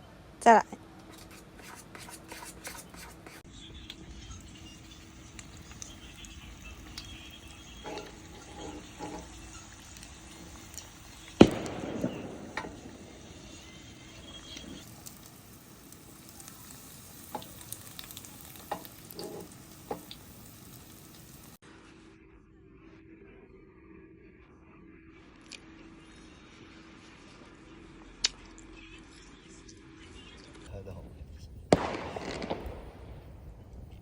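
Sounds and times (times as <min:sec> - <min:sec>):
food sizzling in oil: 0:01.4 - 0:21.6
utensil clicks and taps: 0:17.3 - 0:20.3.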